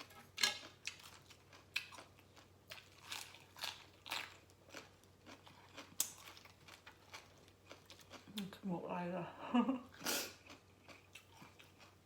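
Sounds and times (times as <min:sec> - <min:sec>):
person chewing crunchy food: 0:00.0 - 0:08.5, 0:10.0 - 0:12.0.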